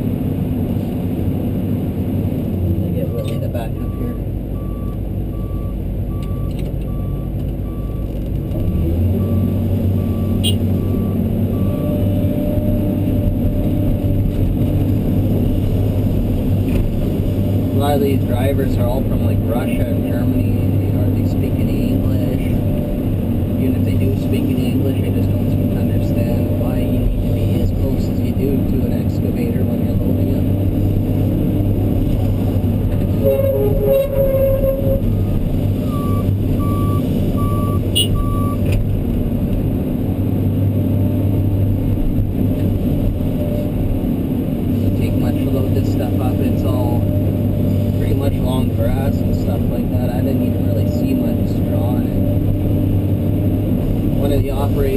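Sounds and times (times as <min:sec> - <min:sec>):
truck reversing beeps: 0:03.2 - 0:13.0, 0:33.2 - 0:38.7
excavator diesel engine running: 0:08.8 - 0:14.2, 0:32.3 - 0:38.7
horn sounding: 0:10.1 - 0:11.1, 0:33.2 - 0:35.2, 0:35.8 - 0:38.6.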